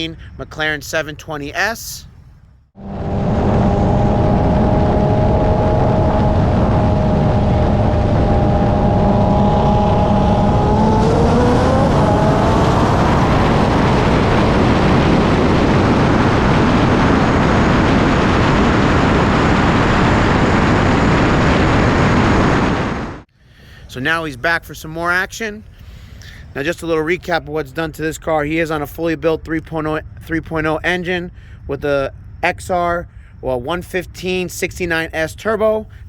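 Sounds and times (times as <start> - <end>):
cars accelerating hard: 2.8 - 17.0
rushing wind noise: 2.8 - 23.3.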